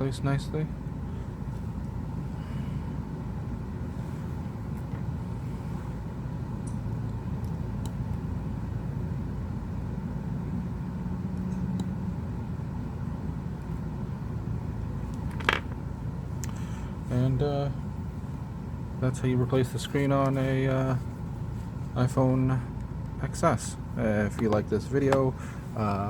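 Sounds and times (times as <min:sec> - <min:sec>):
low background rumble: 0:00.0 - 0:26.0.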